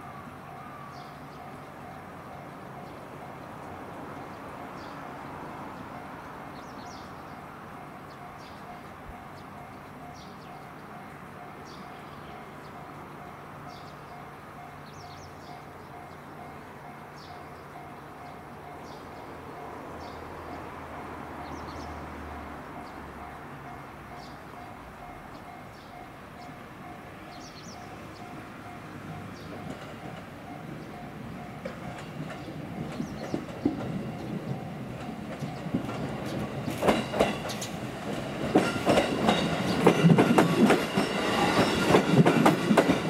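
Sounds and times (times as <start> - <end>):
electric train rumble: 0.0 - 43.0.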